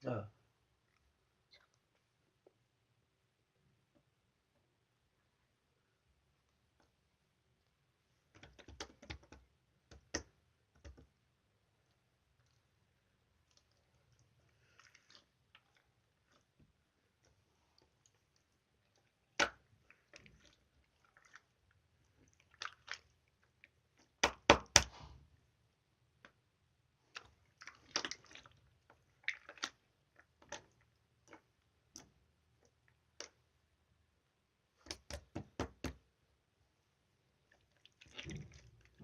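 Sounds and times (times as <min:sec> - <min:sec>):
slime squelching: 0:08.2 - 0:25.3, 0:26.1 - 0:33.8, 0:37.2 - 0:39.0.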